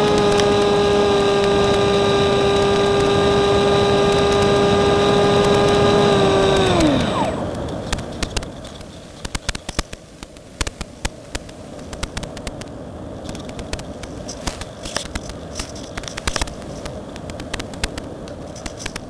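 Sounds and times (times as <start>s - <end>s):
electric motor winding down: 0.0s - 8.0s
crackles and clicks: 0.0s - 19.0s.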